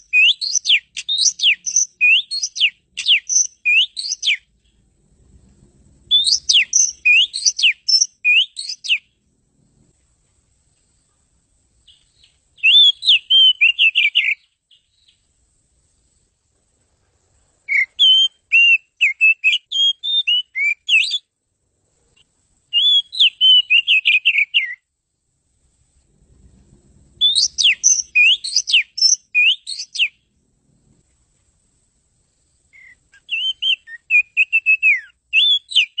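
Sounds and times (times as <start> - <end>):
bird singing whistled notes: 0.0 - 4.8, 6.0 - 9.2, 11.8 - 15.4, 17.6 - 21.3, 22.7 - 24.9, 27.2 - 30.3, 32.6 - 36.0.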